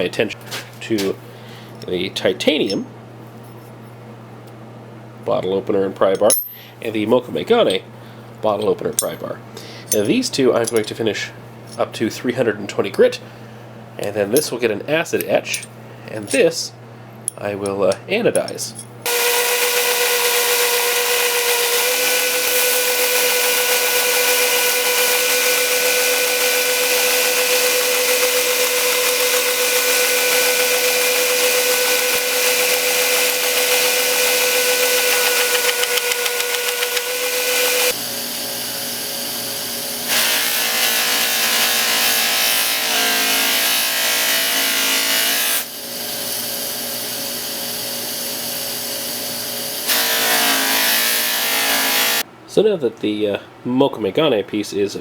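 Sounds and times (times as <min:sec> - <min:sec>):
power sander motor hum: 0:19.1 - 0:42.3.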